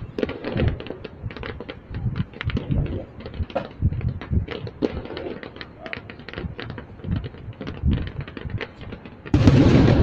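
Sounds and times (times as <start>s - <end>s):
distant fireworks crackling pops: 0.0s - 10.0s
low firework thuds: 0.0s - 10.0s
loud firework shell burst: 9.3s - 10.0s.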